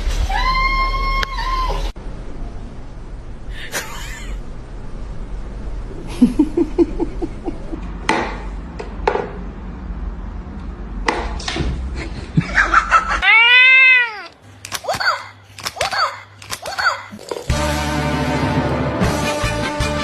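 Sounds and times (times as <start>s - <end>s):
person laughing: 3.6s - 4.5s, 6.0s - 7.9s.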